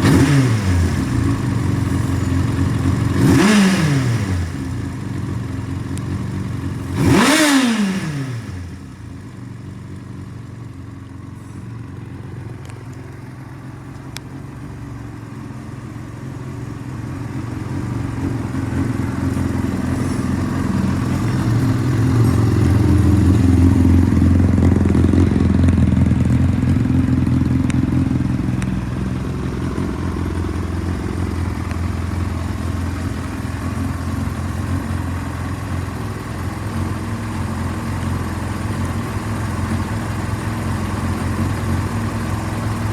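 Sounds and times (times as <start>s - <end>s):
motorcycle engine throttle blip: 0.0s - 8.6s, 17.2s - 42.9s
motorcycle engine idling: 0.0s - 42.9s.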